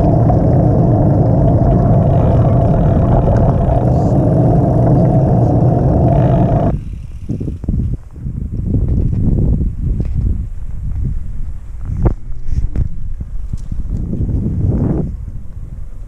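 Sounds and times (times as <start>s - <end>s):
constant hum: 0.0s - 8.2s
wind on microphone: 0.0s - 16.0s.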